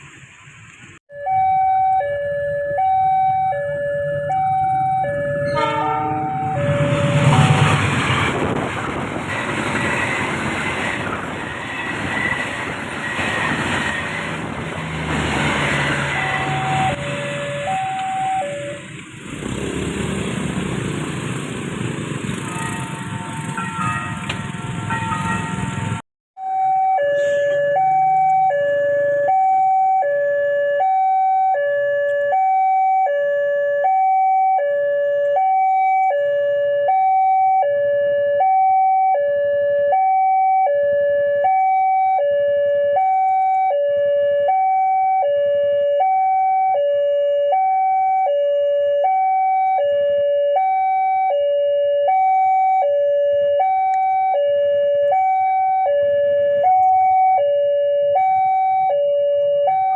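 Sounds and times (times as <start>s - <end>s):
level crossing two-tone alarm: 1.1s - 7.8s, 15.8s - 18.9s, 26.4s - 59.9s.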